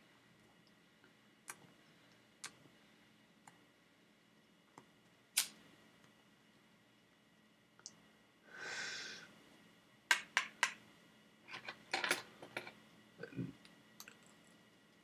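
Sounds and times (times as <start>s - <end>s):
breathy exhale: 8.5s - 9.3s.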